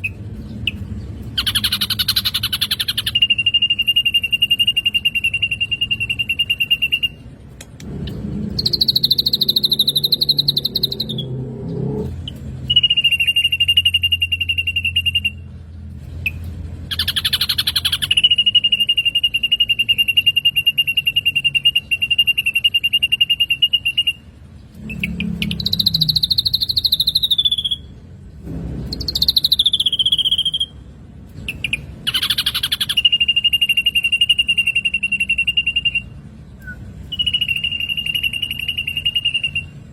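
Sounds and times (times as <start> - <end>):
bird calling: 0.0 - 7.3, 16.3 - 27.9, 31.4 - 39.8.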